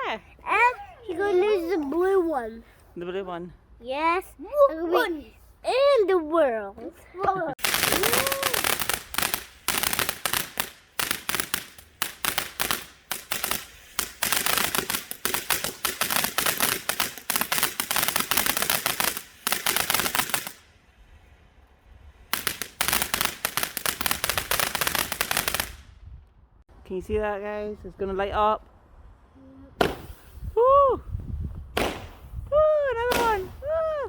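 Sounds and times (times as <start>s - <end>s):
firework crackling: 7.6s - 20.8s, 22.2s - 25.9s, 29.8s - 30.6s, 31.8s - 34.0s.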